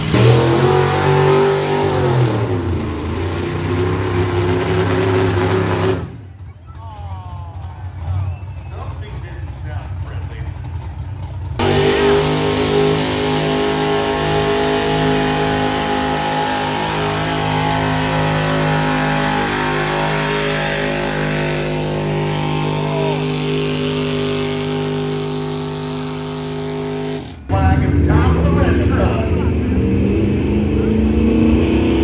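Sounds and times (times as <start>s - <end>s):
engine at full throttle: 0.0s - 32.0s.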